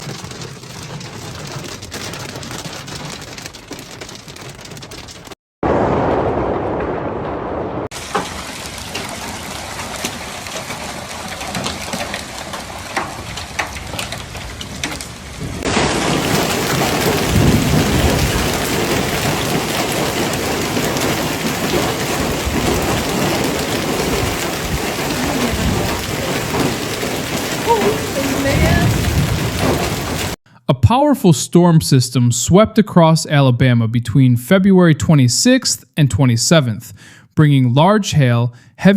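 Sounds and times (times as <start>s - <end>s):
sharp rain taps: 0.0s - 5.4s, 7.9s - 30.4s
heavy rain falling: 0.0s - 30.4s
thunder rumbling: 4.9s - 30.4s.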